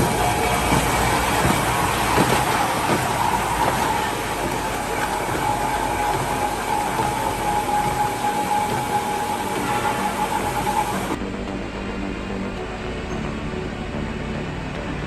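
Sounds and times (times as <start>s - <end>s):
heavy machinery running: 0.0s - 11.2s
high machine whine: 0.0s - 14.1s.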